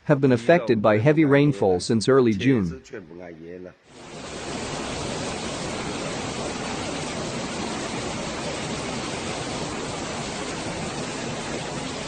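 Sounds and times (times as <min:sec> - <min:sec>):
steady water noise: 0:03.9 - 0:12.0.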